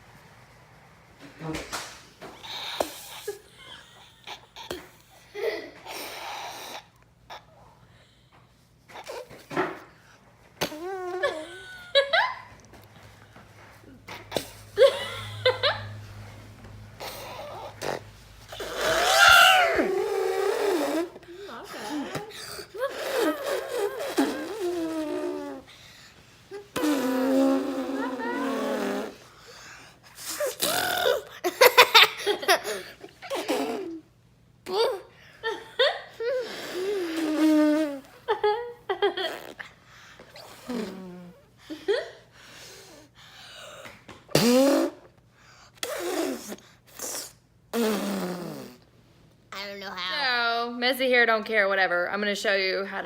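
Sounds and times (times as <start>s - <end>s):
people imitating elephant trumpet: 17.0s - 21.2s
person imitating elephant trumpet: 17.0s - 22.2s, 22.8s - 25.7s, 26.8s - 29.2s.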